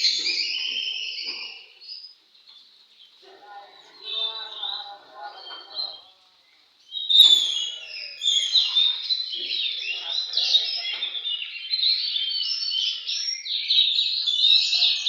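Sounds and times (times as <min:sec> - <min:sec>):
songbird whistles and trills: 0:06.9 - 0:15.0.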